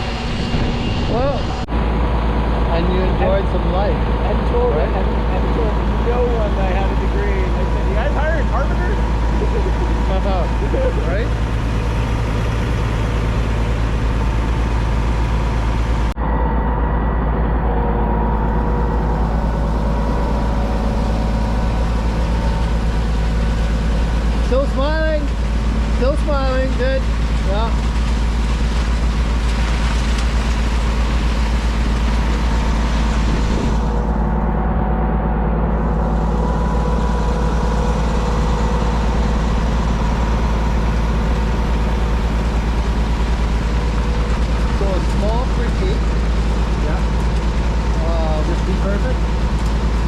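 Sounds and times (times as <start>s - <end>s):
faint steady whine: 0.0s - 50.0s
truck engine rumbling: 0.0s - 50.0s
wind buffeting microphone: 31.7s - 34.8s.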